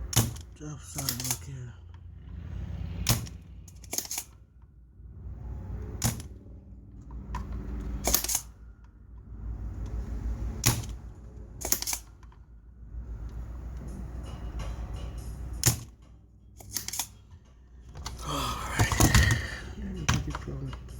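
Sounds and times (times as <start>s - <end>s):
desoldering pump snapping: 0.0s - 1.5s, 3.0s - 4.4s, 7.3s - 8.5s, 10.6s - 12.4s, 15.6s - 16.0s, 16.6s - 17.2s.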